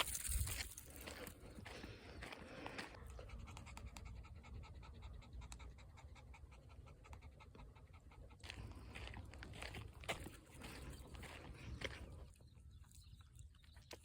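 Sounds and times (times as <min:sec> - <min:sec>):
dog panting rapidly: 0:02.9 - 0:11.8.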